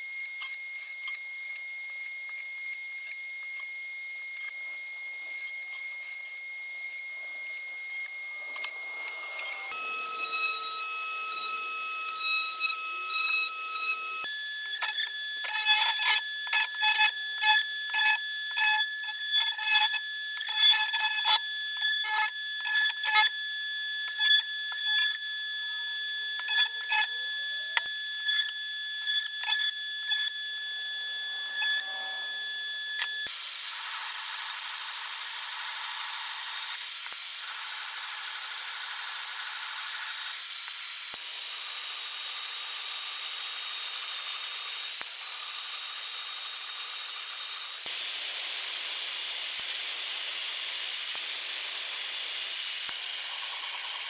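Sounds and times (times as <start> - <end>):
power tool motor whining: 0.0 - 23.1.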